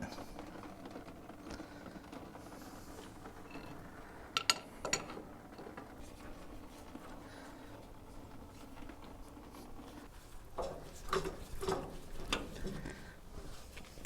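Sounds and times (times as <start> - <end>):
tools and parts being handled: 3.3 - 7.2, 7.9 - 14.0.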